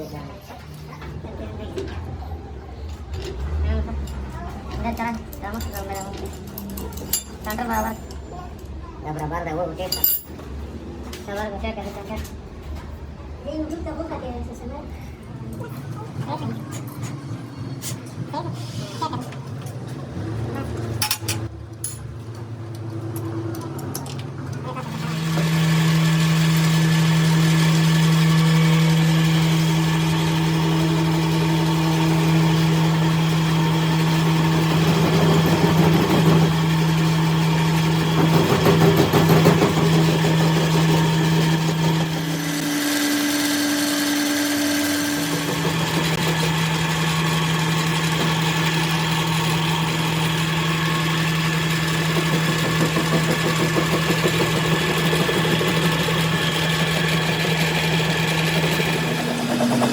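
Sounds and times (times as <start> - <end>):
machine motor humming: 24.6 - 59.9.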